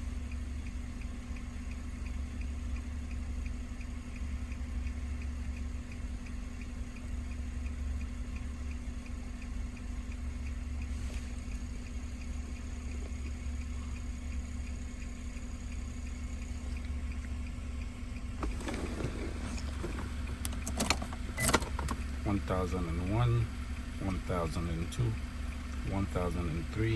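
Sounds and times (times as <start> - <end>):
faint regular ticking: 0.0 - 26.9
steady low hum: 0.0 - 26.9.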